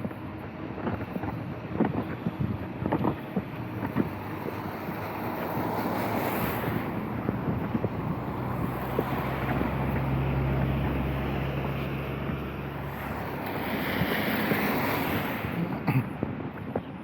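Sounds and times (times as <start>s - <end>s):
low engine hum: 0.0s - 17.0s
tyres hissing on wet asphalt: 3.5s - 15.8s.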